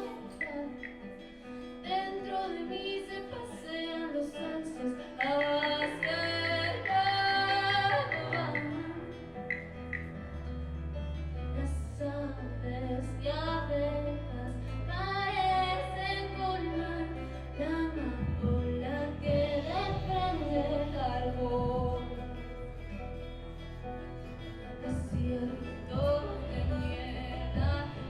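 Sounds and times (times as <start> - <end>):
woman singing: 0.0 - 9.4, 11.6 - 23.3, 24.6 - 28.0
guitar: 0.0 - 28.0
double bass low notes: 7.5 - 28.0.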